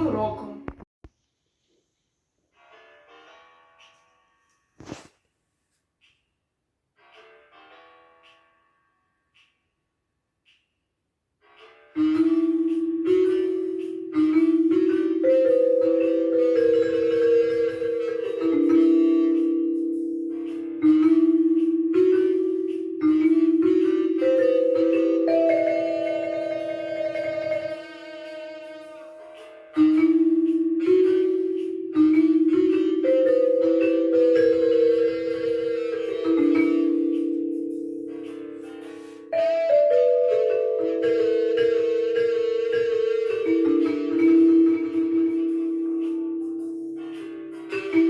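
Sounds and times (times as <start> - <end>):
mallet percussion tremolo melody: 12.0 - 48.0.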